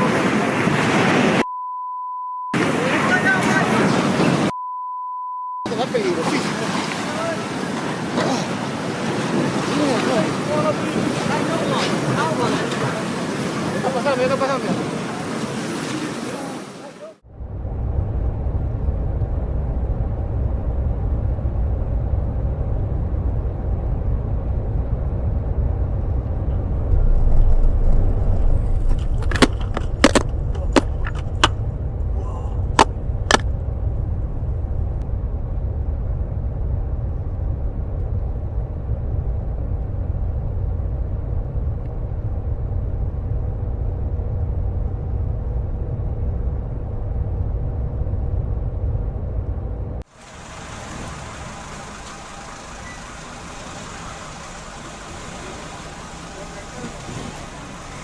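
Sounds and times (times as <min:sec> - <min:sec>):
low rumble of earthquake shaking: 0:17.2 - 0:58.0.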